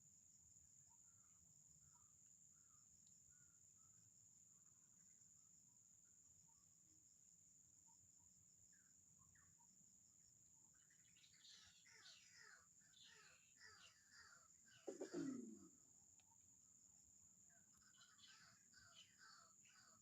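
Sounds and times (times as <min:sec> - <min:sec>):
high insect hum: 0:00.0 - 0:20.0
falling bird chirps: 0:11.6 - 0:15.7
lower falling bird call: 0:14.8 - 0:15.7.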